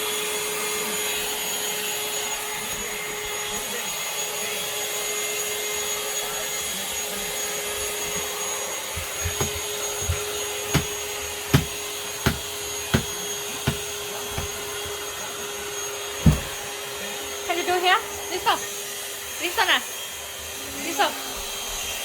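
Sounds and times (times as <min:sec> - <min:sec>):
cordless vacuum cleaner whining: 0:00.0 - 0:22.0
sharp thumps: 0:09.0 - 0:15.0.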